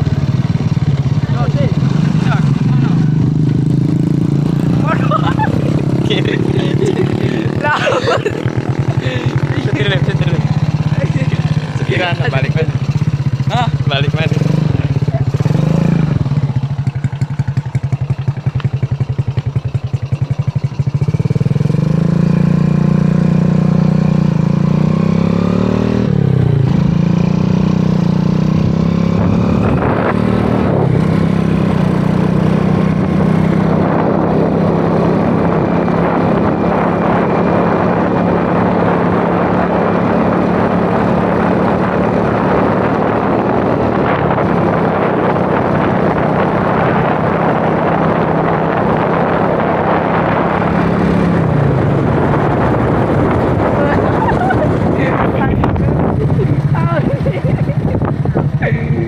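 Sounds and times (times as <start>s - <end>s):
motorcycle engine revving: 0.0s - 59.0s
wind on microphone: 24.4s - 59.0s.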